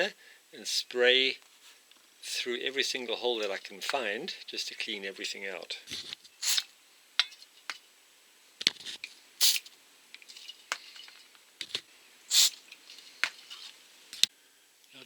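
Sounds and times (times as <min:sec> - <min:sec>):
aerosol spray hissing: 0:06.4 - 0:06.7, 0:09.4 - 0:09.7, 0:12.3 - 0:13.7.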